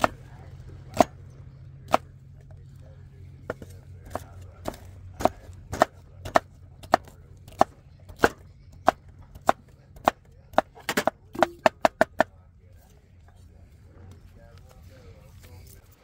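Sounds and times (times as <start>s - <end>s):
blade chopping: 0.0s - 2.2s, 3.4s - 12.3s.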